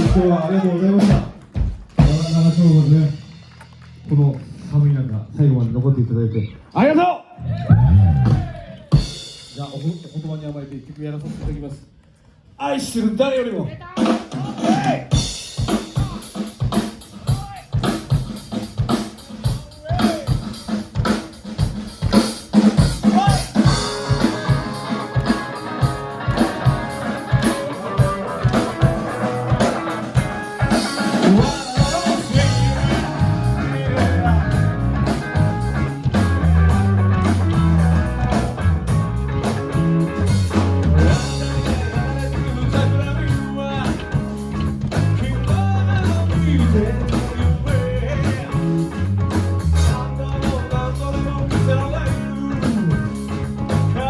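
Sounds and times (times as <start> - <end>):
live rock band playing: 0.0 - 4.3, 7.7 - 10.4, 14.0 - 54.0
drums: 0.0 - 6.0, 6.6 - 54.0
person singing: 23.7 - 38.3, 40.9 - 49.1, 49.7 - 53.2.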